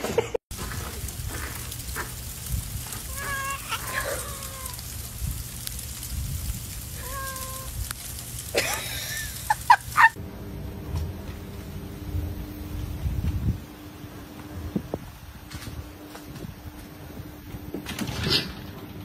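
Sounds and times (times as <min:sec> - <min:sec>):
steady background hiss: 0:00.6 - 0:10.2
animal calling: 0:03.0 - 0:04.9
sharp animal cries: 0:03.0 - 0:04.9, 0:07.0 - 0:07.7.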